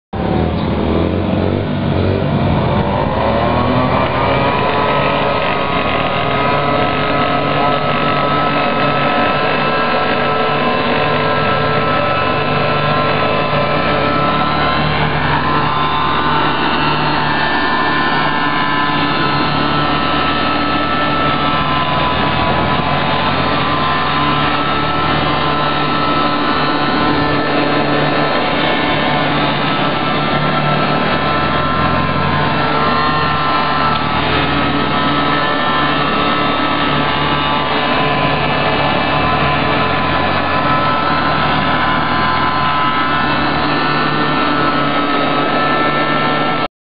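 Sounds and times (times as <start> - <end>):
small engine running: 0.2 - 46.7.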